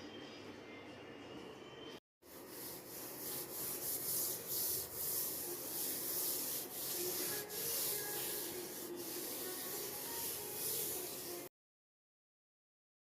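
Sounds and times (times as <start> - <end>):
sponge scrubbing hard surface: 2.2 - 11.5.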